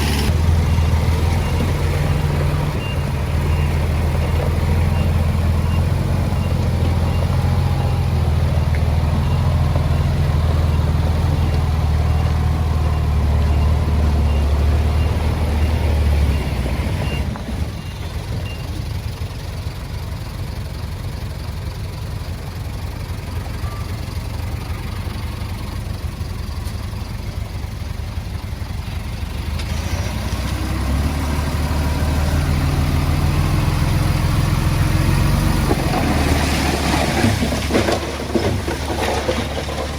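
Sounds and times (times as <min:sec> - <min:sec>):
heavy diesel engine running: 0:00.0 - 0:39.9
faint reversing beeper: 0:00.3 - 0:18.9, 0:23.2 - 0:27.4.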